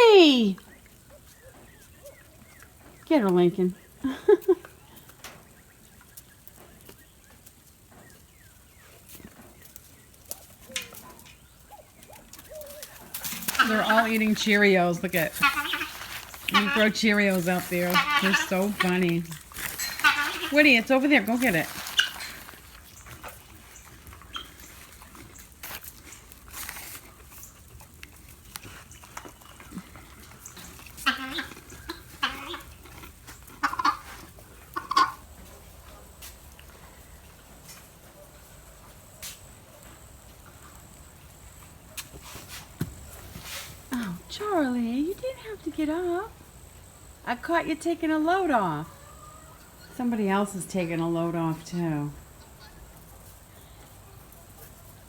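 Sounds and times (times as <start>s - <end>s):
animals crunching cereal: 3.7s - 47.2s.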